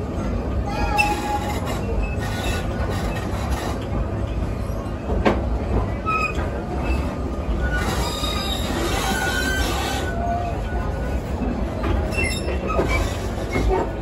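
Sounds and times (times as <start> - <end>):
train rumbling along track: 0.0 - 14.0
wheel squeals: 6.0 - 11.1, 12.0 - 13.9.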